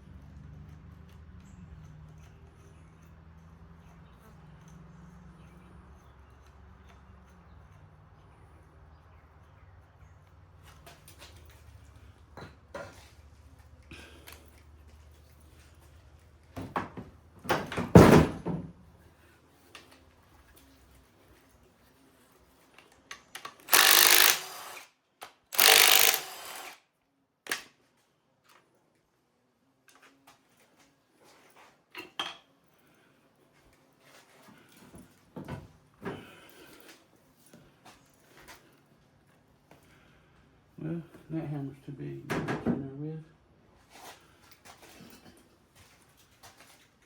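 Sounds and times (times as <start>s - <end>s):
power tool bursts: 23.6s - 24.9s, 25.5s - 26.8s.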